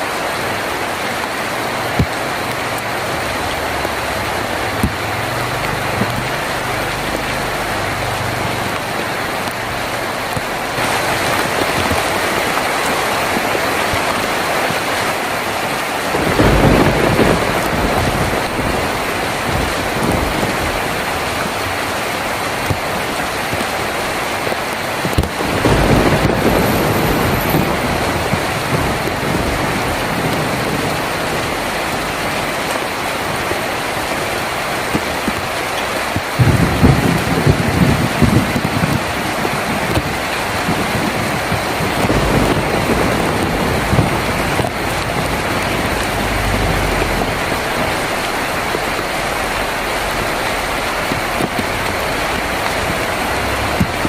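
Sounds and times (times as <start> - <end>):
heavy rain on a tin roof: 0.0 - 54.0
low thunder rumbles: 15.7 - 23.8, 25.0 - 54.0.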